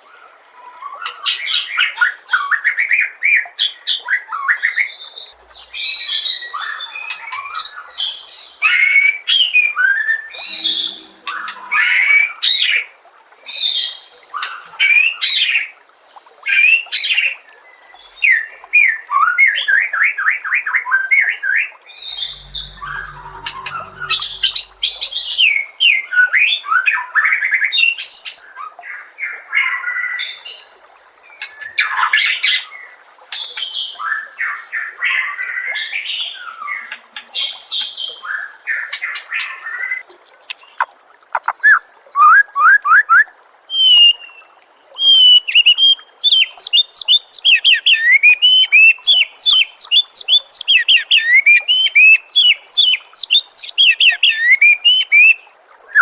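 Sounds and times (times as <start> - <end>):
songbird singing whistles and trills: 39.9 - 56.0.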